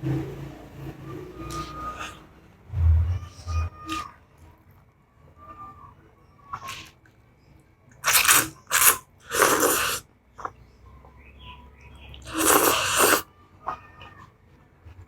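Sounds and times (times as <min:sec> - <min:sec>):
loud hissing noodle slurps: 0:08.0 - 0:10.0, 0:12.3 - 0:13.3.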